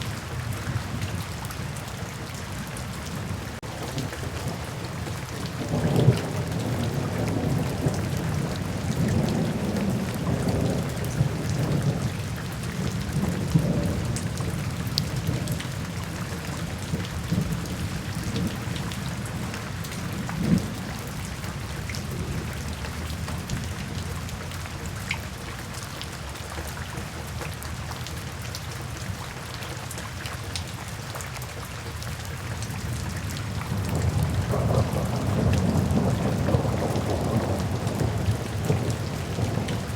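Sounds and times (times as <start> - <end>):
steady rain falling: 0.0 - 39.9
low rolling thunder: 3.3 - 24.4, 32.8 - 39.9.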